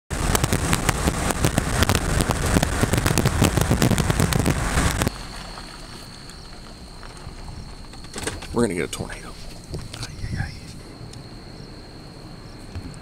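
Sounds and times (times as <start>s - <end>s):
low rumble: 0.1s - 13.0s.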